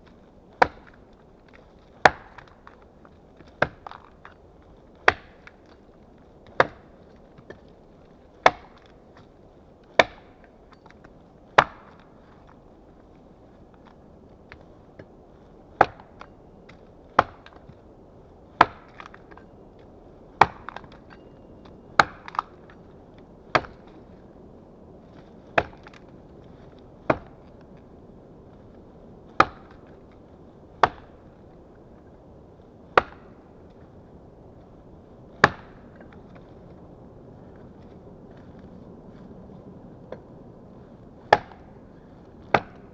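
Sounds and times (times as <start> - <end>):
axe chopping wood: 0.6 - 4.4, 5.0 - 5.8, 6.4 - 7.6, 8.4 - 9.3, 10.0 - 12.2, 15.8 - 17.8, 18.6 - 19.4, 20.4 - 21.2, 22.0 - 22.8, 23.5 - 24.1, 25.2 - 26.1, 27.1 - 27.6, 29.3 - 30.2, 30.8 - 31.4, 32.9 - 33.5, 35.4 - 36.5, 41.2 - 42.9.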